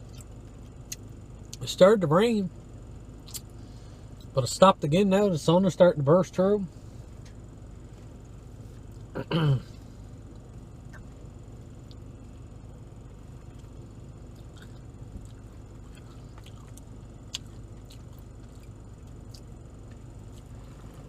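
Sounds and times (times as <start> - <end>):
person chewing: 0.0 - 1.6, 3.2 - 3.5, 10.3 - 11.2, 13.4 - 21.0
steady low hum: 0.0 - 21.0.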